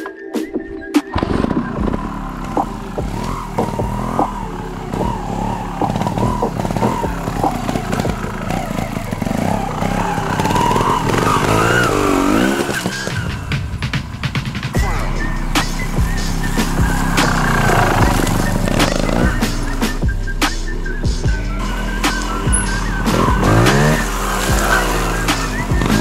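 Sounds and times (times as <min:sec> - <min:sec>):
motorcycle engine revving: 0:01.1 - 0:26.0
motorcycle knocks and clatter: 0:01.2 - 0:14.7.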